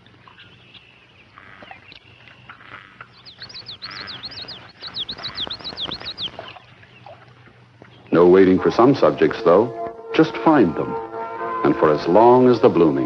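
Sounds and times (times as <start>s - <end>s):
birds chirping: 0.0s - 13.0s
low steady hum: 0.0s - 13.0s
bird giving fast high chirps: 2.6s - 6.6s.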